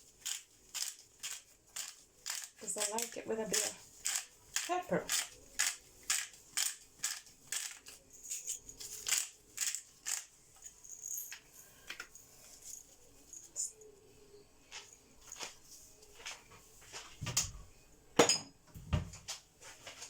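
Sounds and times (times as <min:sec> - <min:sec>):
pepper mill grinding: 0:00.2 - 0:10.8.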